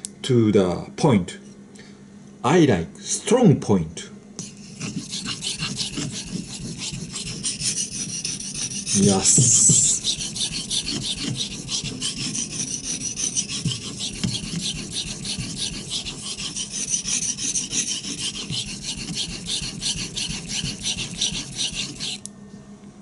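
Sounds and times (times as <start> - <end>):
knife scraping on whetstone: 4.4 - 22.3.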